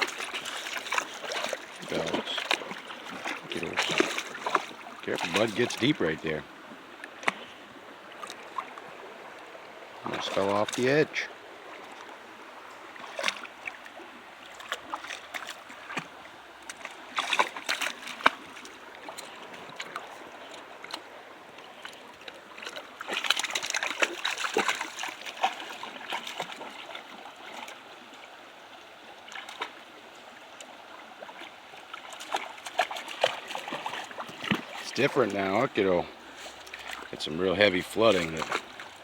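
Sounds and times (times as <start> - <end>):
knocks and splashes: 0.0 - 6.4, 10.0 - 11.2, 13.0 - 21.1, 21.8 - 27.8, 29.3 - 29.8, 31.4 - 39.0
brook rushing over rocks: 0.0 - 6.7, 10.0 - 28.0, 32.0 - 39.0.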